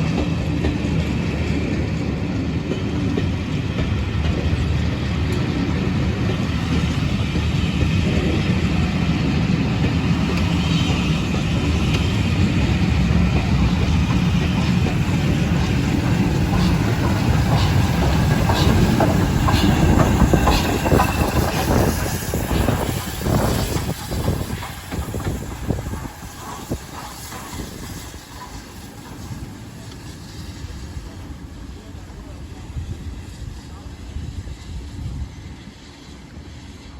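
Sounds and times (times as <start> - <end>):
train rumbling past: 0.0 - 36.9
wheels clicking over rail joints: 9.8 - 30.1.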